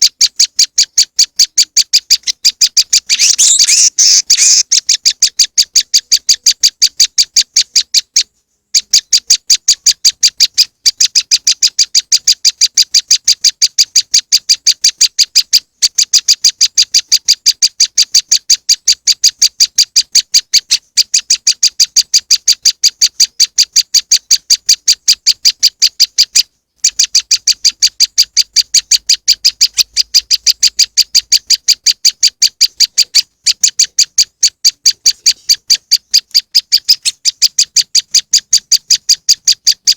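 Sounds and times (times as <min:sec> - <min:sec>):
bird high chip notes: 0:03.1 - 0:04.7.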